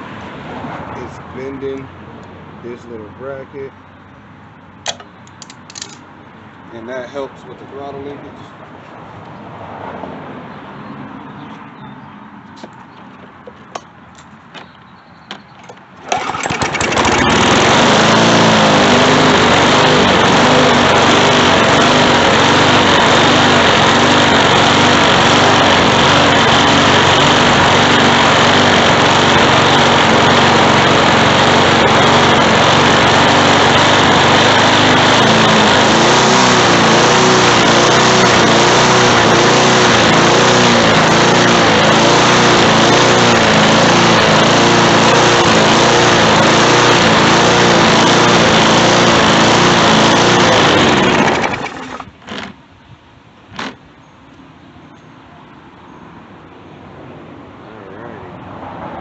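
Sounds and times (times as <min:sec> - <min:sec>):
lawn mower engine running: 0:01.6 - 0:06.5, 0:15.3 - 0:52.7.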